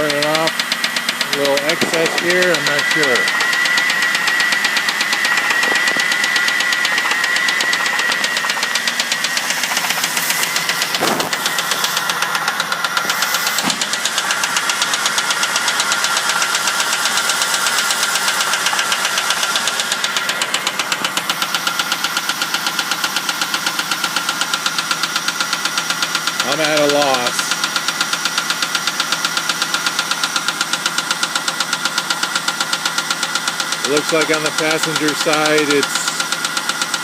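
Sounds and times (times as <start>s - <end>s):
car engine ticking: 0.0s - 37.0s
steady high whine: 0.1s - 14.6s.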